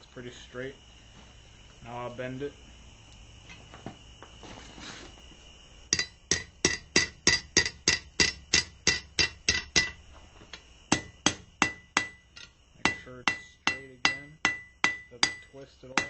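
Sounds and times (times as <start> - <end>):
hammer striking steel on anvil: 5.9 - 10.0, 10.9 - 16.0.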